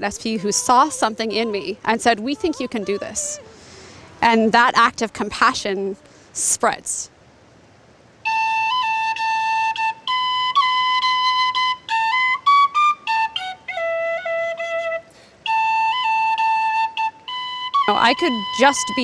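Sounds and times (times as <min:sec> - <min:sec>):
flute playing slow melody: 0:08.2 - 0:19.0.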